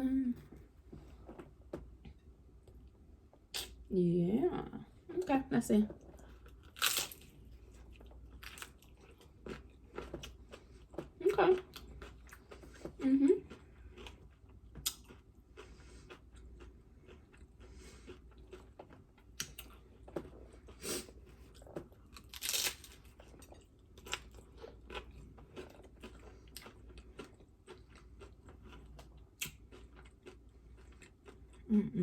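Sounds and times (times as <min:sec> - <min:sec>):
crunching fried tostada shell: 0:06.5 - 0:07.4, 0:21.9 - 0:30.0.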